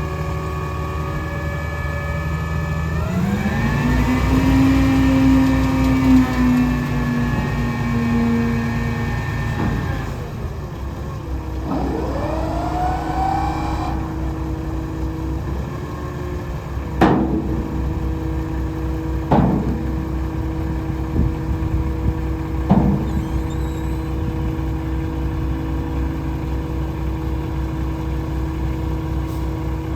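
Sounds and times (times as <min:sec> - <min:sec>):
diesel truck engine idling: 0:00.0 - 0:29.9
rising whine: 0:11.5 - 0:16.9.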